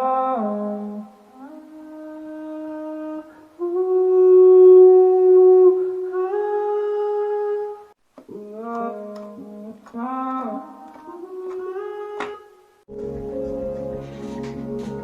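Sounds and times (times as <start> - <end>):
sliding held-note melody: 12.9 - 15.0.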